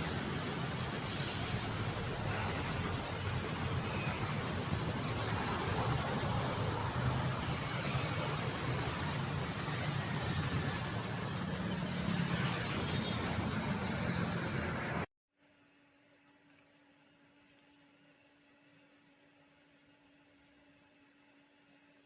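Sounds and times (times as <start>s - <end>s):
road noise rush: 0.0s - 15.1s.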